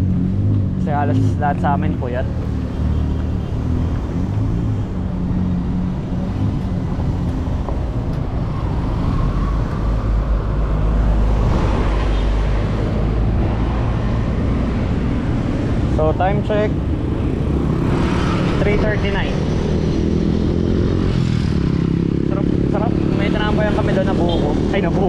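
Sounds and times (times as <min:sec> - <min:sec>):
passing traffic: 0:00.0 - 0:25.0
wind rumbling on microphone: 0:03.8 - 0:22.3.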